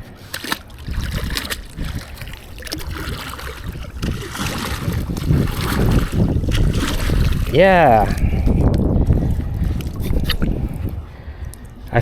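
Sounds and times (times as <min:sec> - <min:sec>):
water sloshing and trickling: 0:00.0 - 0:12.0
wind rumbling on microphone: 0:00.0 - 0:12.0.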